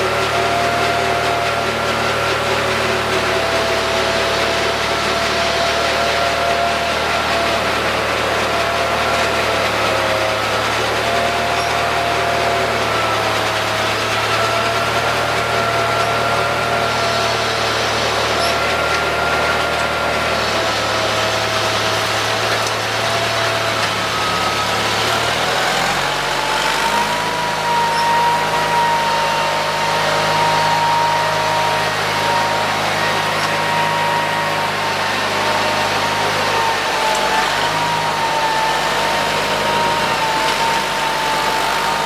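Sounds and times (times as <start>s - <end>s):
garden tractor engine running: 0.0s - 42.0s.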